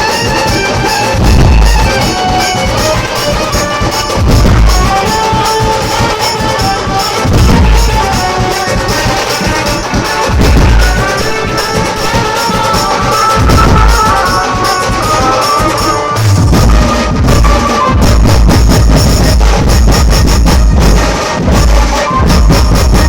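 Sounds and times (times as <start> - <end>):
keyboard melody: 0.0 - 19.8
drums: 0.0 - 23.0
deep bass boom: 1.2 - 1.9, 4.2 - 5.0, 10.4 - 11.2, 16.2 - 23.0.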